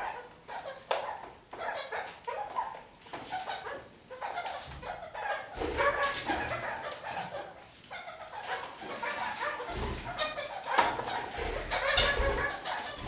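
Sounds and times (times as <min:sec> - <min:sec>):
parakeet chattering and warbling: 0:06.6 - 0:13.0.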